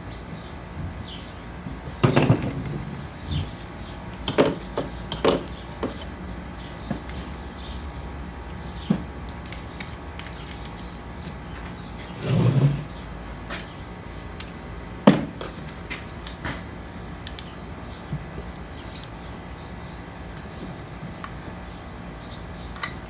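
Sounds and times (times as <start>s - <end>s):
heavy clunk: 2.0s - 3.5s
tools and parts clicking: 4.2s - 7.3s, 9.3s - 11.7s, 15.9s - 16.6s, 17.2s - 17.5s.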